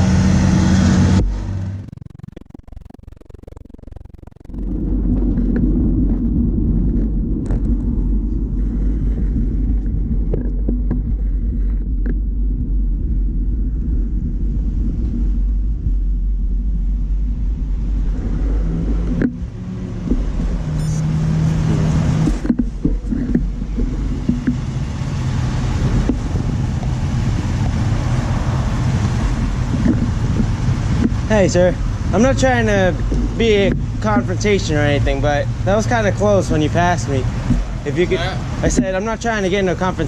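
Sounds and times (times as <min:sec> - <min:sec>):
wind rumbling on microphone: 0:00.0 - 0:40.0.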